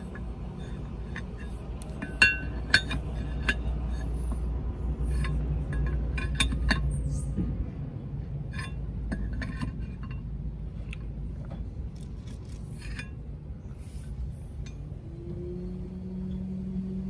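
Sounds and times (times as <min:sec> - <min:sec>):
low steady rumble: 0:00.0 - 0:17.0
steady hum: 0:00.0 - 0:17.0.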